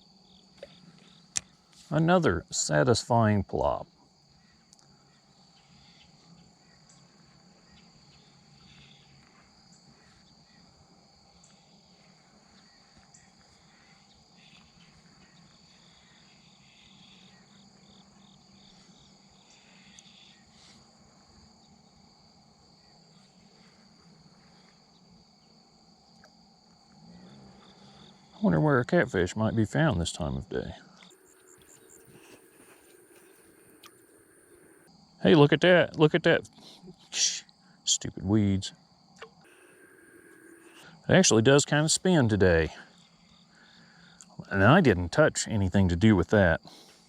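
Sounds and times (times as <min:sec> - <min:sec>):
high-pitched insect chorus: 0:00.0 - 0:47.0
faint ticks: 0:04.7 - 0:05.0, 0:19.4 - 0:20.3, 0:26.1 - 0:27.8.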